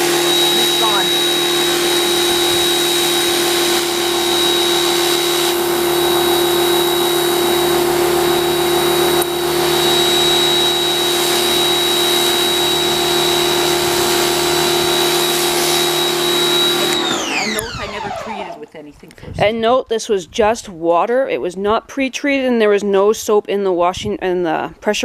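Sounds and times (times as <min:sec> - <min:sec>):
water jet hissing: 0:00.0 - 0:18.1
pressure washer motor whining: 0:00.0 - 0:18.7.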